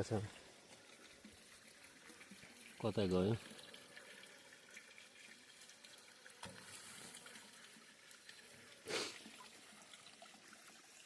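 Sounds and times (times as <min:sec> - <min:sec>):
running water trickling: 0:00.0 - 0:11.0.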